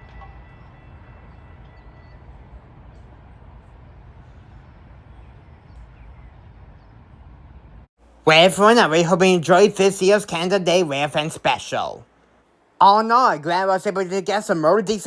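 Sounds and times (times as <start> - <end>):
train rumbling: 0.0 - 7.9.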